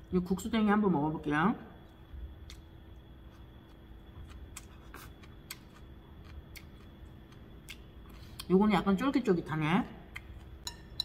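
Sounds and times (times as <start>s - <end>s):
low steady hum: 0.0s - 11.0s
person chewing with faint clicks: 1.8s - 8.6s, 10.1s - 10.8s.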